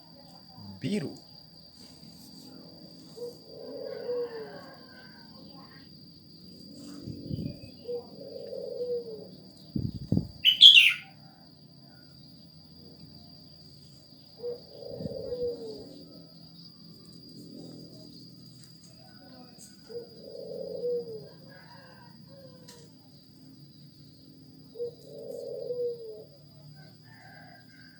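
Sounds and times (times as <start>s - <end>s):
birds calling: 7.0s - 11.1s.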